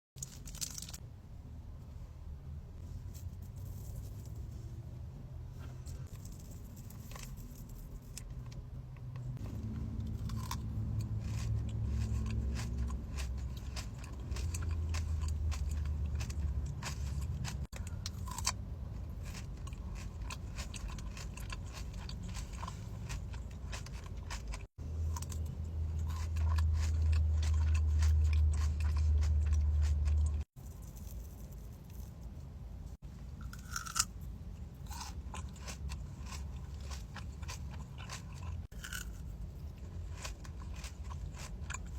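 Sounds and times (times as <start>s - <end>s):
crunching and chewing chocolate: 0.2s - 1.0s, 9.2s - 32.1s, 33.4s - 41.9s.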